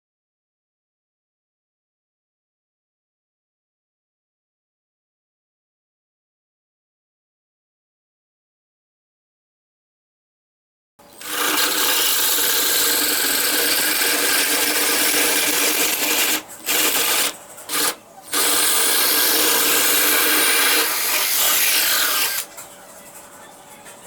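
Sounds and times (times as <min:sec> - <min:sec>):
power tool motor running: 0:11.2 - 0:22.5.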